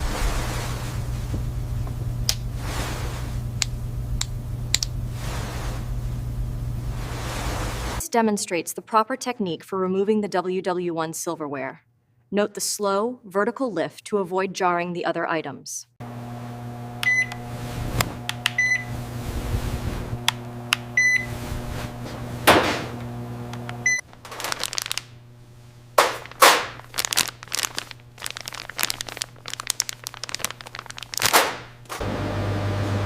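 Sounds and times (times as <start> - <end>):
electrical appliance humming: 0.0 - 8.0, 16.0 - 33.0.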